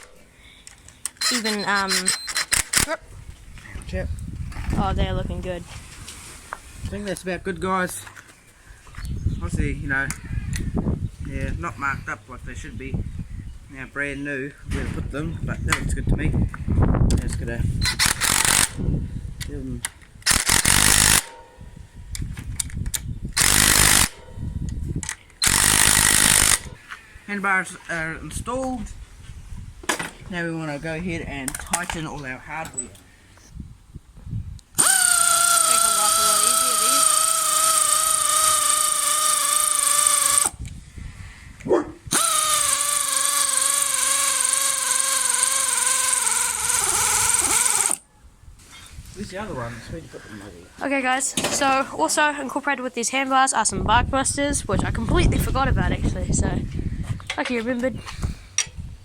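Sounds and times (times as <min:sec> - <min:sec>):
power driver whining: 0:00.0 - 0:03.0, 0:17.2 - 0:18.8, 0:20.2 - 0:21.4, 0:22.2 - 0:24.2, 0:25.0 - 0:26.8, 0:34.6 - 0:40.7, 0:42.1 - 0:48.0
air impact wrench: 0:01.1 - 0:03.0, 0:17.8 - 0:18.8, 0:20.2 - 0:21.3, 0:23.4 - 0:24.2, 0:25.4 - 0:26.8, 0:34.8 - 0:40.6, 0:42.1 - 0:48.0.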